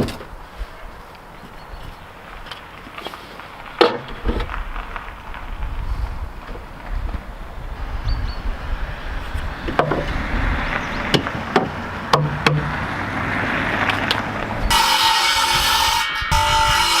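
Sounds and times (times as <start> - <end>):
steady low rumble: 4.4 - 14.8
sharp knocks on wood: 11.1 - 12.7.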